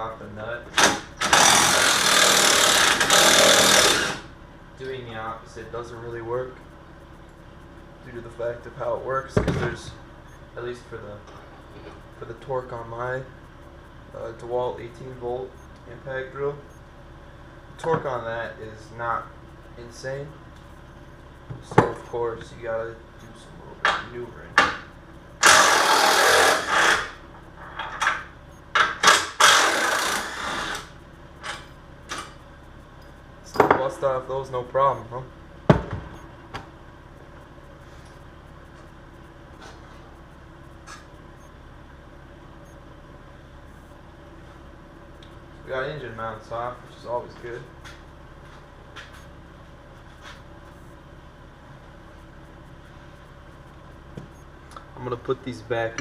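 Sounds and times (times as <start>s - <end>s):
low background hum: 0.0s - 56.0s
cordless impact driver bursts: 0.8s - 4.3s, 25.4s - 27.2s, 29.0s - 30.9s.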